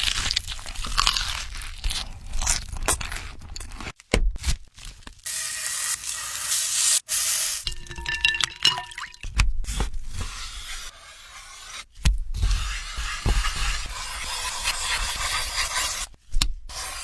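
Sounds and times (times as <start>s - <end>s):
food crunching and scraping: 0.0s - 6.1s.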